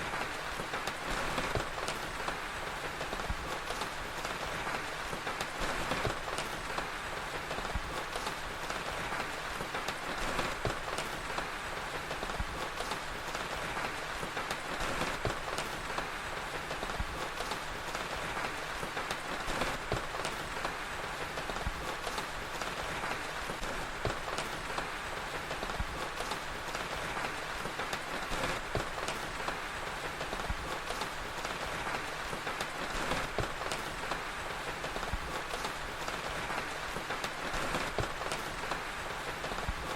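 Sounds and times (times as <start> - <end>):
steady rain falling: 0.0 - 39.9
wood fire crackling: 0.0 - 39.9.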